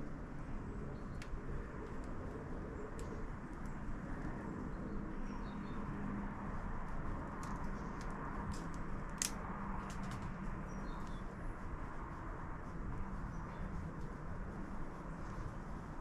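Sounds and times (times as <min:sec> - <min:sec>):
outdoor background hum: 0:00.0 - 0:16.0
faint sparrow chirps: 0:04.6 - 0:05.9, 0:10.6 - 0:11.3
sharp clicks: 0:07.4 - 0:10.2.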